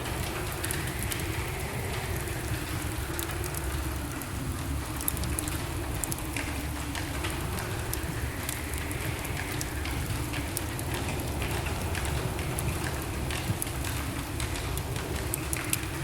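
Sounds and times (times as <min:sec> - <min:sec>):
fire crackling and snapping: 0:00.0 - 0:16.0
low rush of flames: 0:00.0 - 0:16.0.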